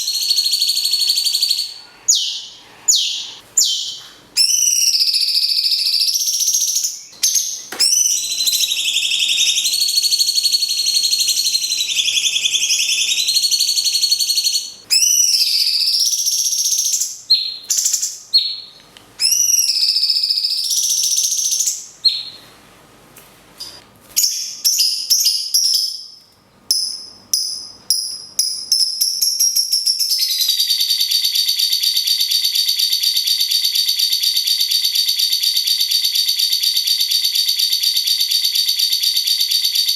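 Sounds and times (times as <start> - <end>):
bird fast even trill: 0.0 - 17.0
songbirds chattering: 6.4 - 14.0.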